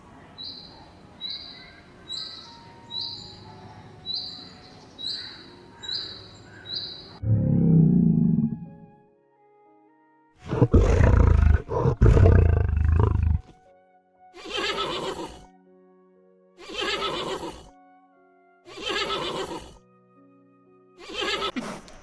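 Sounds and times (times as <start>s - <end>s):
soft background music: 0.0s - 22.0s
large animal deep roar: 7.2s - 8.9s, 10.4s - 13.5s
whinny-like animal calls: 10.4s - 13.5s, 14.4s - 15.5s, 16.6s - 17.7s, 18.7s - 19.8s, 21.0s - 21.6s.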